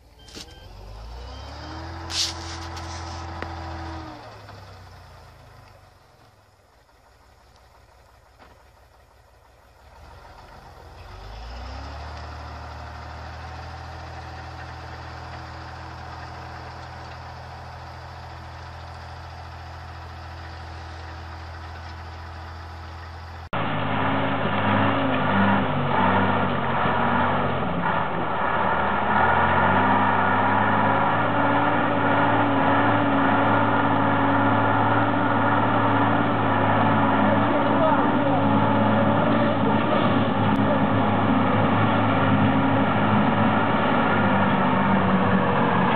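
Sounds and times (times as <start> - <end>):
truck engine starting and running: 0.0 - 45.9
truck engine wavering pitch: 0.0 - 45.9.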